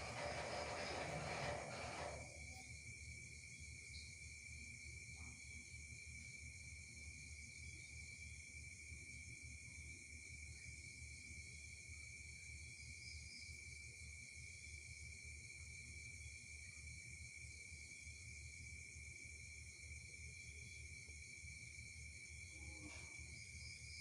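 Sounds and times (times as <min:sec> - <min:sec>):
hiss: 0:00.0 - 0:02.6.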